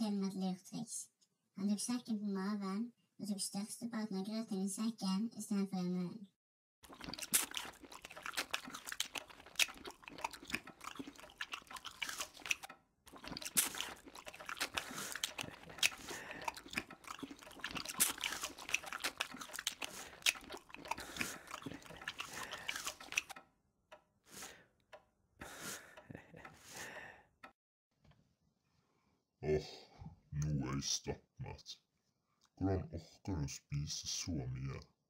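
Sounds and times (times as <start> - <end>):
people chewing and eating: 6.8 - 23.4, 25.4 - 27.2.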